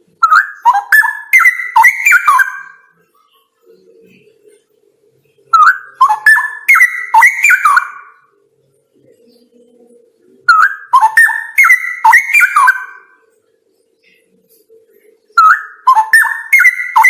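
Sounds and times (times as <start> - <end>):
bird singing whistled notes: 0.2 - 2.9, 5.5 - 8.3, 10.5 - 13.2, 15.4 - 17.0.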